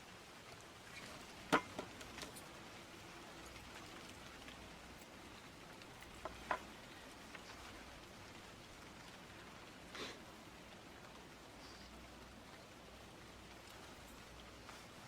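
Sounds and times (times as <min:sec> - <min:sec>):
faint steady hiss: 0:00.0 - 0:15.0
light clicks and taps: 0:03.4 - 0:08.2.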